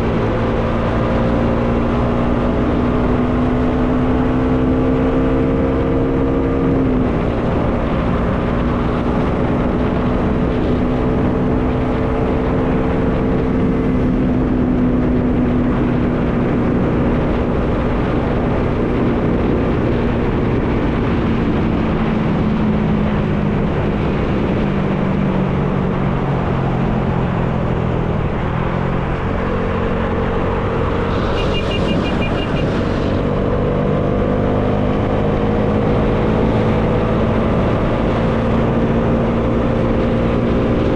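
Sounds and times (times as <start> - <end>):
wind noise: 0.0 - 40.9
high-pitched beeping: 31.1 - 32.8.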